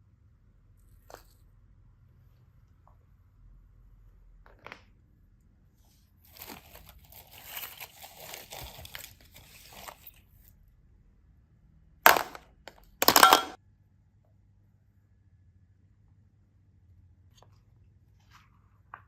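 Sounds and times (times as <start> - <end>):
crinkling and rustling: 6.1 - 10.5.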